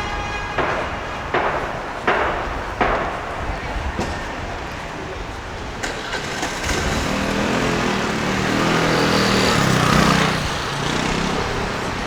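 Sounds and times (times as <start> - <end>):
traffic noise: 0.0 - 12.0
vehicle engine passing by: 5.8 - 12.0.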